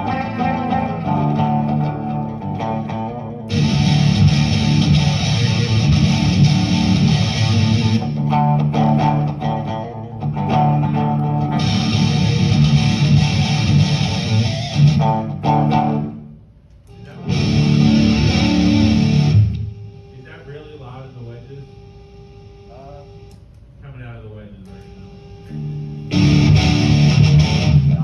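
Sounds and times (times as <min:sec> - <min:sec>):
distorted electric guitar: 0:00.0 - 0:16.4, 0:17.1 - 0:19.7, 0:25.5 - 0:28.0.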